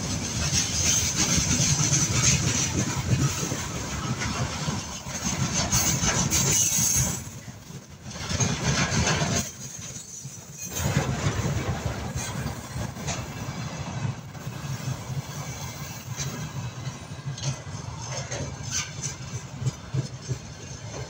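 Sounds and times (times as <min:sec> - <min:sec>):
freight train rolling past: 0:00.0 - 0:21.0.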